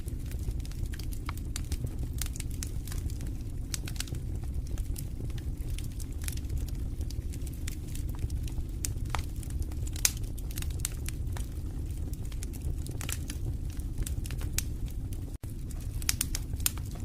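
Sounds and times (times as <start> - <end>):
fireplace fire crackling: 0.0 - 17.0.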